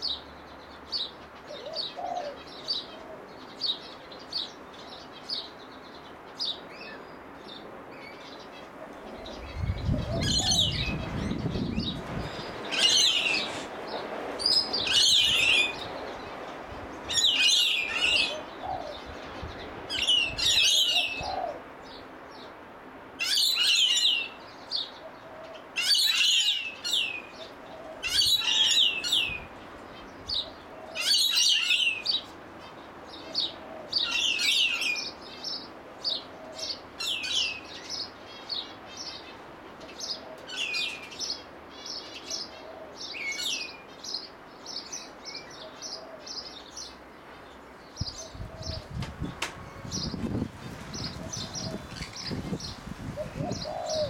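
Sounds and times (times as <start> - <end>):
birds calling with falling sweeps: 0.0 - 22.6, 23.2 - 54.0.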